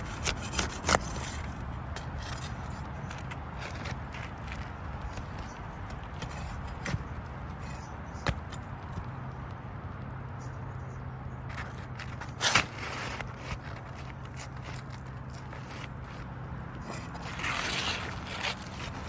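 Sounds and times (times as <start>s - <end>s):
loud scrape: 0.0s - 4.3s, 11.6s - 19.0s
steady low hum: 0.0s - 19.0s.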